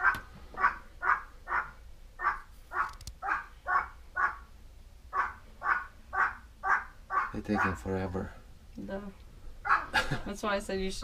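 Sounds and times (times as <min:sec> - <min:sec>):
animal harsh calls: 0:00.0 - 0:08.1, 0:09.6 - 0:10.0.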